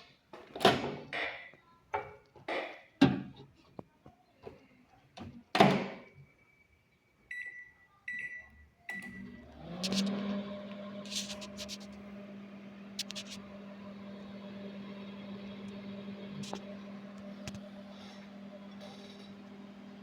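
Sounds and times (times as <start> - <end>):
microwave keypad beeping: 7.3 - 9.4.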